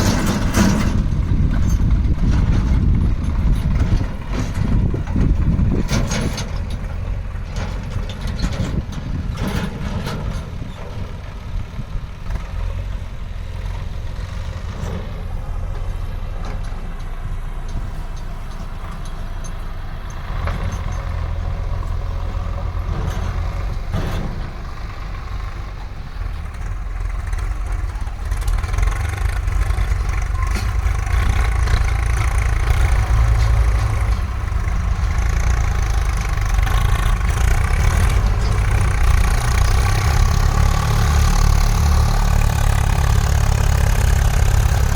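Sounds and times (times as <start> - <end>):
knocks and clanks: 0.0 - 11.1, 22.7 - 25.0
heavy diesel engine running: 0.0 - 44.9.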